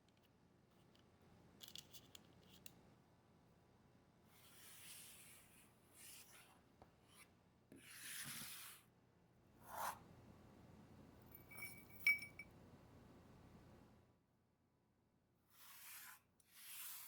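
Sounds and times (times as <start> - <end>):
sharp ringing clink: 11.3 - 12.5.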